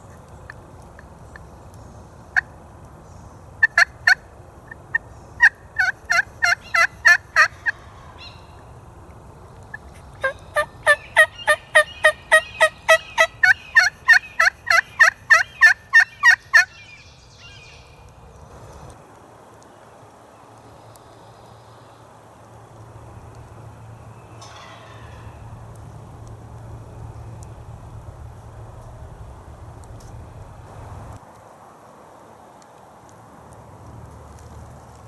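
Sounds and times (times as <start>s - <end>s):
turkey yelping: 4.9s - 8.7s, 9.7s - 16.9s.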